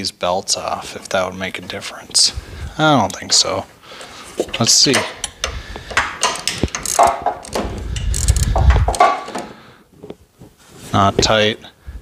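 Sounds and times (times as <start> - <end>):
metal tools clanking: 4.4 - 9.5.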